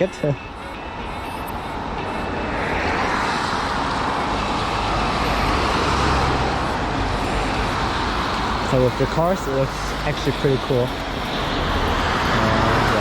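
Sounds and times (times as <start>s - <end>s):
low engine rumble: 0.0s - 13.0s
tyres hissing on wet road: 2.8s - 13.0s.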